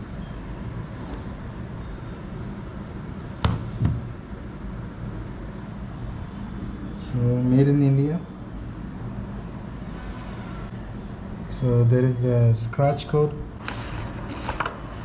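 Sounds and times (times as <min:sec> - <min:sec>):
knocks on a box: 0:03.4 - 0:04.1.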